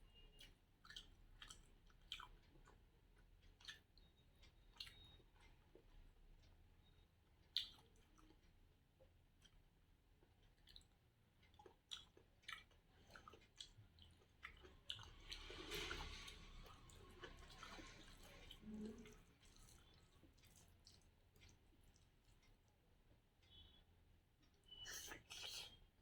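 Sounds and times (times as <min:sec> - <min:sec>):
person chewing food: 0:00.3 - 0:06.1, 0:07.4 - 0:23.8
wet mouth clicks and smacks: 0:03.6 - 0:03.8, 0:07.6 - 0:08.0.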